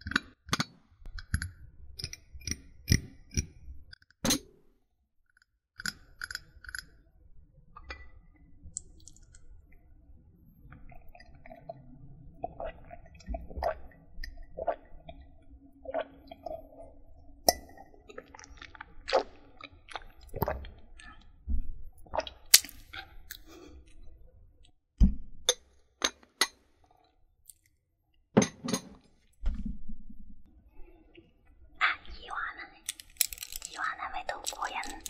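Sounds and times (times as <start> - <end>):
small objects clicking and tapping: 0.0 - 4.5, 5.4 - 6.9, 22.5 - 23.4, 32.8 - 35.0.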